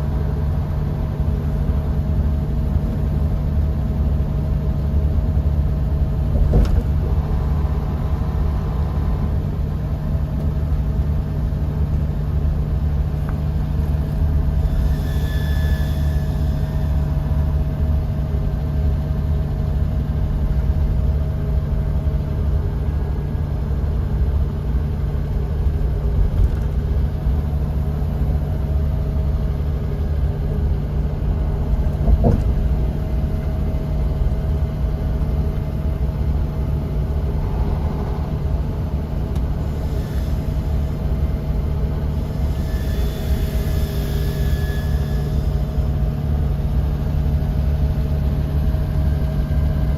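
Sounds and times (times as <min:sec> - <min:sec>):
bus engine and road drone: 0:00.0 - 0:49.9
faint whine: 0:00.0 - 0:49.9
brief higher tone: 0:14.6 - 0:17.7, 0:42.5 - 0:45.9.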